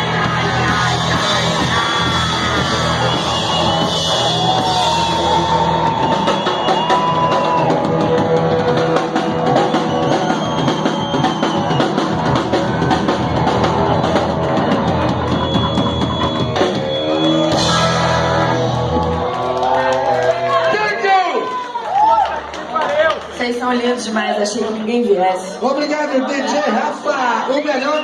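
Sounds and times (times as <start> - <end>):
garage rock band playing live: 0.0 - 20.6
guitar: 0.0 - 20.8.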